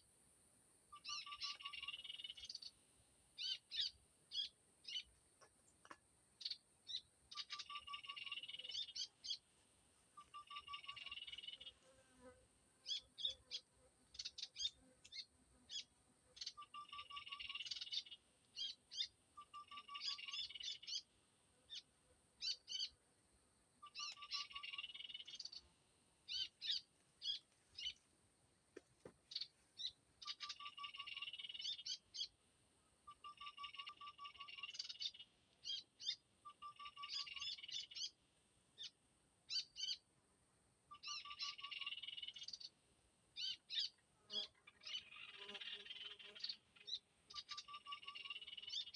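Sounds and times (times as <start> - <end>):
small bird calls from a speaker: 0.9 - 2.7, 3.4 - 5.1, 5.8 - 9.4, 10.2 - 11.7, 12.8 - 21.1, 23.8 - 25.7, 26.3 - 28.0, 29.3 - 32.4, 33.1 - 38.2, 39.5 - 40.0, 40.9 - 42.7, 43.4 - 48.9.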